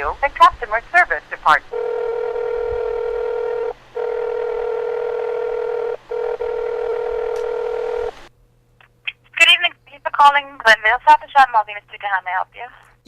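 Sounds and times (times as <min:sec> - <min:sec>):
steady telephone line tone: 0:01.7 - 0:08.3.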